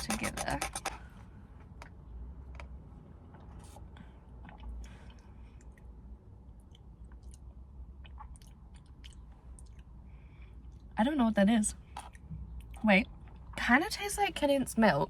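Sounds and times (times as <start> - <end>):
person sipping and swallowing: 4.3 - 5.8.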